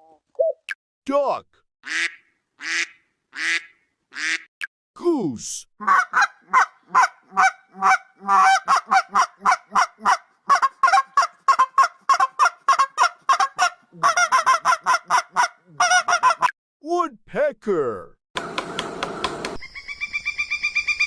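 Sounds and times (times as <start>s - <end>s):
goose honking: 5.8s - 16.5s.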